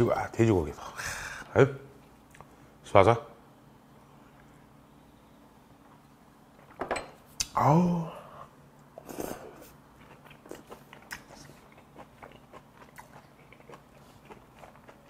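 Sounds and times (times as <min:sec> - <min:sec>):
man chewing: 0:09.0 - 0:15.0.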